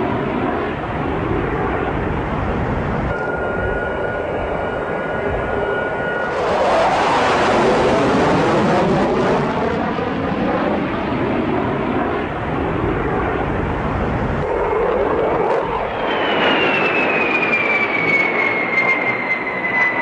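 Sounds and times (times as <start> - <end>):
jet engines roaring: 0.0 - 20.0
thin steady whine: 0.4 - 8.0.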